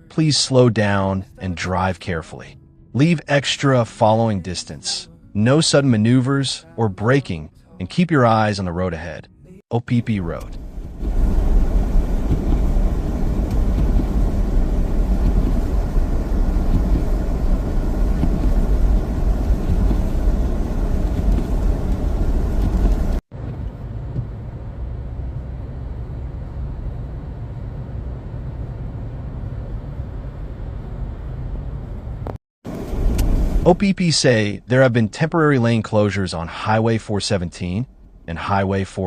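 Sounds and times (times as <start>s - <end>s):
dull steady hum: 0.0s - 39.0s
vehicle road and engine rumble: 9.4s - 36.8s.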